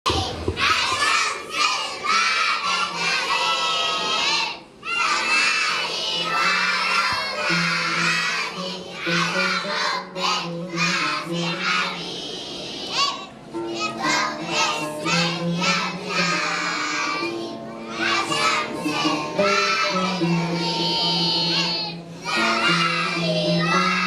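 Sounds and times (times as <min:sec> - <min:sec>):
children singing loudly: 0:00.1 - 0:24.0
backing music with low notes: 0:06.4 - 0:12.5, 0:13.4 - 0:24.0.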